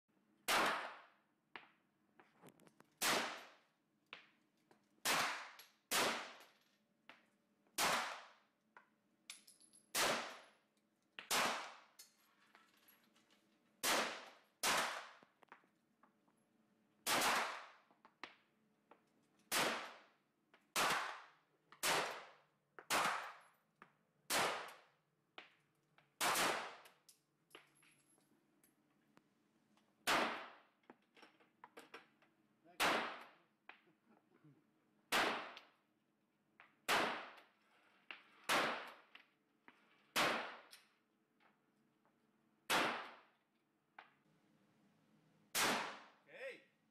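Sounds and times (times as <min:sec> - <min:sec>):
gunshots: 0:00.5 - 0:01.1, 0:03.0 - 0:03.6, 0:05.0 - 0:06.4, 0:07.8 - 0:08.3, 0:10.0 - 0:10.5, 0:11.3 - 0:11.8, 0:13.8 - 0:15.2, 0:17.0 - 0:17.8, 0:19.5 - 0:20.0, 0:20.8 - 0:22.3, 0:22.9 - 0:23.4, 0:26.2 - 0:26.8, 0:30.0 - 0:30.6, 0:32.8 - 0:33.4, 0:35.1 - 0:35.6, 0:36.9 - 0:37.4, 0:38.5 - 0:39.0, 0:40.2 - 0:40.7, 0:42.7 - 0:43.2, 0:45.5 - 0:46.2.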